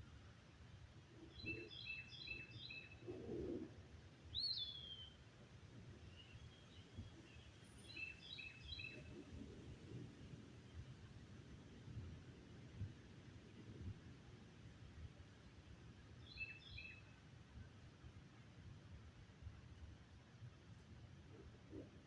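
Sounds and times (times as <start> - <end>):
songbird singing: 1.3 - 3.0, 4.3 - 5.2, 6.1 - 9.1, 16.2 - 17.0.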